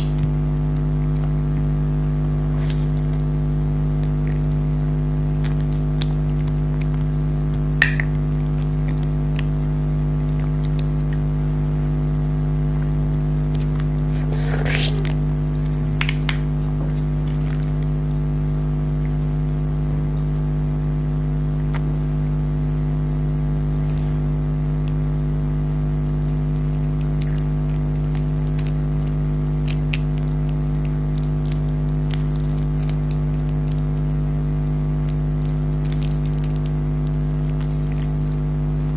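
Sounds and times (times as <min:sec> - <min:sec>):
steady low hum: 0:00.0 - 0:38.9
chewing jelly candies: 0:02.5 - 0:11.4, 0:12.7 - 0:18.1, 0:24.8 - 0:38.9.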